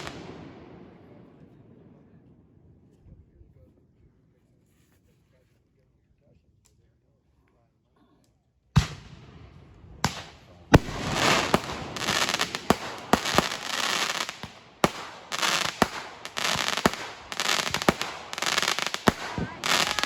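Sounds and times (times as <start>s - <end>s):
fireworks crackling: 0.0s - 0.5s, 8.8s - 20.0s
fireworks bangs: 0.0s - 2.0s, 8.8s - 20.0s.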